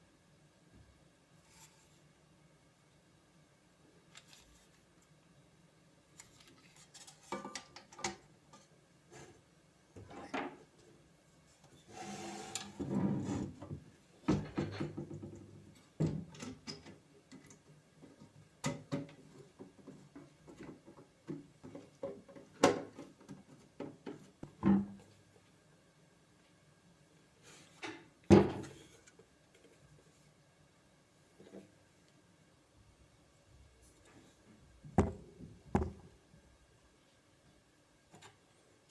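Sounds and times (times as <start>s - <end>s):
sharp knocks: 35.0s - 36.1s.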